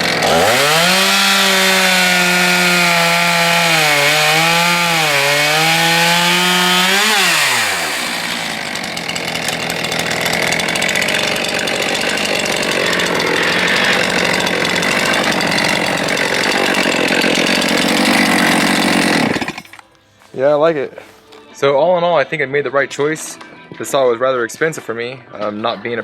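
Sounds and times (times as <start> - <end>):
chainsaw cutting at high revs: 0.0 - 19.8.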